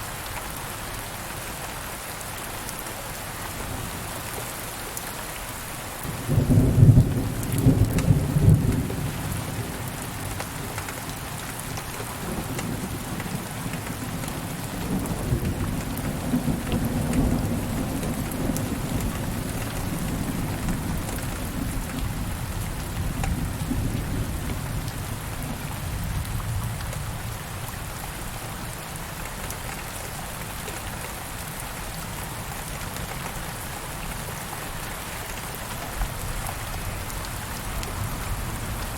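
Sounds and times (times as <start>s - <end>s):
steady rain: 0.0s - 38.9s
low rolling thunder: 6.1s - 10.2s.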